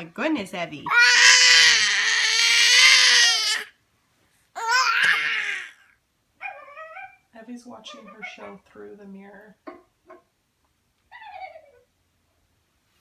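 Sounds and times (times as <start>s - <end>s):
baby crying: 0.9s - 3.7s, 4.6s - 5.8s.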